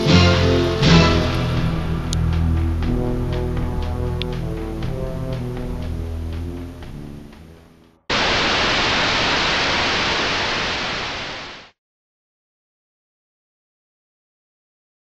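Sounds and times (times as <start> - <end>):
background music: 0.0 - 8.1
loud static hiss: 8.1 - 11.8.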